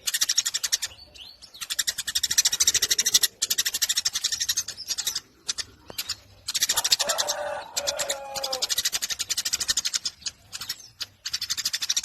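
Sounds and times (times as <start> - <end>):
sparrow chattering: 0.0 - 12.0
low drawn-out bird call: 6.5 - 9.5.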